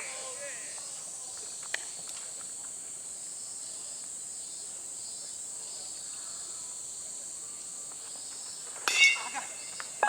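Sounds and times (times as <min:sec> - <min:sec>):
insects chorus shrill drone: 0:03.3 - 0:10.0.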